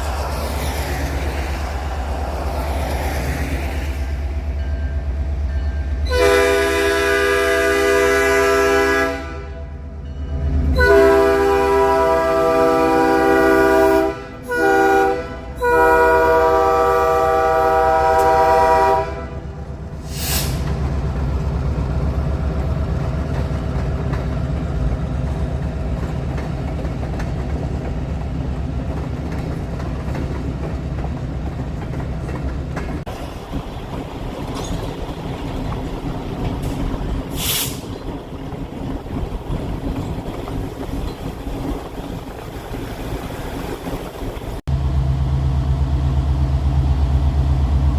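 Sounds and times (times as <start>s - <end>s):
train rumbling by: 0.0s - 47.9s
locomotive horn blasts: 6.0s - 9.8s, 10.7s - 19.6s
brief hisses: 20.0s - 20.7s, 36.7s - 37.9s.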